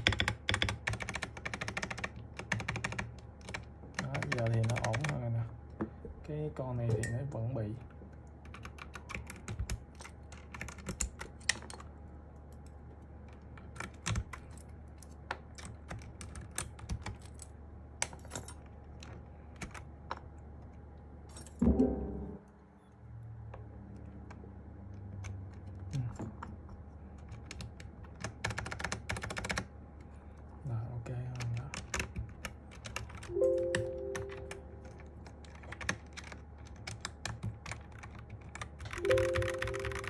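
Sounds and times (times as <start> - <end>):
mechanical keyboard keys clicking: 0.0 - 5.2, 8.4 - 11.8, 13.3 - 14.7, 15.4 - 20.2, 27.2 - 29.7, 31.3 - 40.0
loud knock: 21.6 - 22.4.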